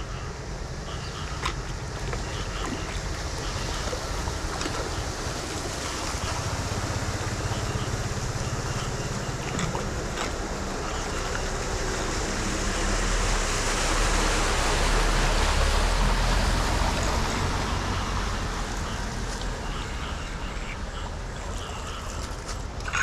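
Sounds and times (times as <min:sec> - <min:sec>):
water rushing on flooded street: 0:00.0 - 0:23.0.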